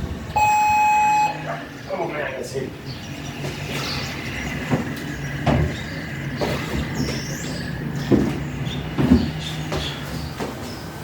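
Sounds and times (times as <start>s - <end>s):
steady low hum: 0.0s - 1.9s.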